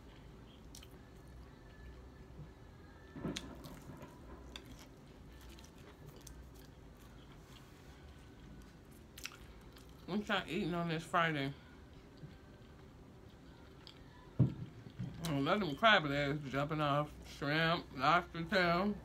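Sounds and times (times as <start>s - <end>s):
person chewing and biting food: 0.5s - 1.1s, 3.6s - 10.0s.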